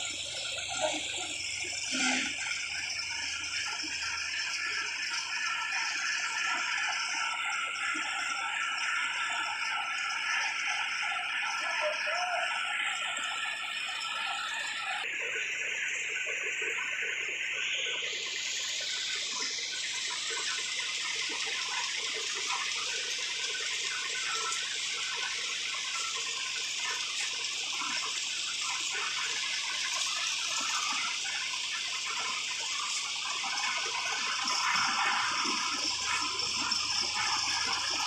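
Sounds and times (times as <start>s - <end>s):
rushing water: 18.2s - 38.0s.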